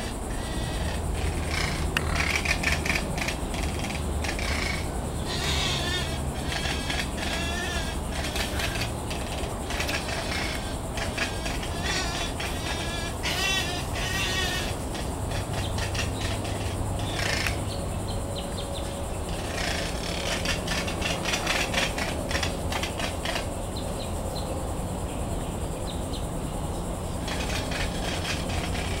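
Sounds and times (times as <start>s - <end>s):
birds bleat-like calls: 0.0s - 23.9s, 27.2s - 29.0s.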